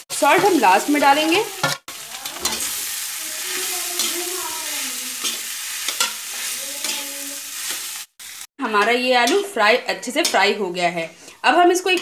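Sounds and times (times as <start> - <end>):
potatoes sizzling in oil: 0.0 - 10.9
metal spatula scraping pan: 0.2 - 7.9.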